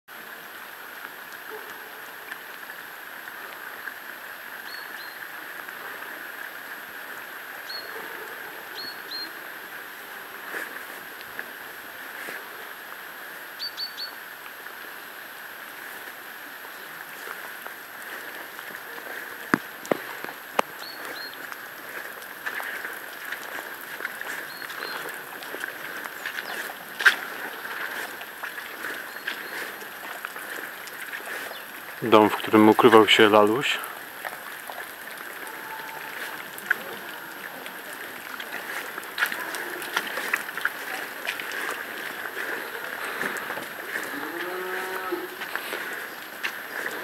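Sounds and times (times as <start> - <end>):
small birds chirping: 7.6 - 8.0, 20.6 - 32.3.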